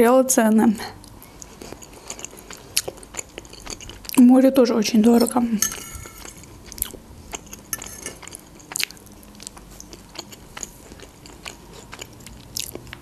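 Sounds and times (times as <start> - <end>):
mouth chewing clicks and smacks: 1.0 - 4.2, 6.2 - 13.0.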